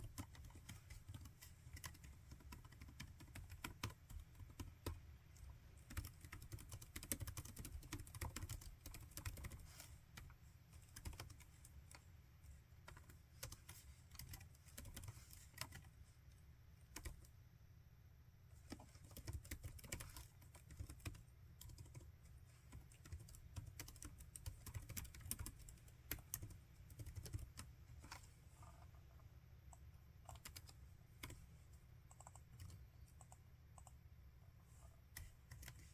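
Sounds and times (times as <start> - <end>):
faint low hum: 0.0 - 35.9.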